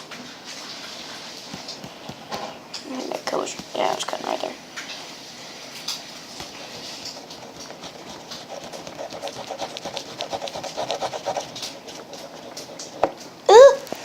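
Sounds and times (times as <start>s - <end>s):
knife sawing through plastic tube: 7.1s - 13.2s.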